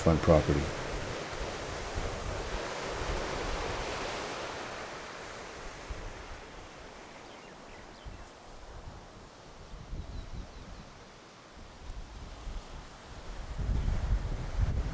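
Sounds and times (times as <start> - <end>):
ocean waves washing on shore: 0.0 - 7.7.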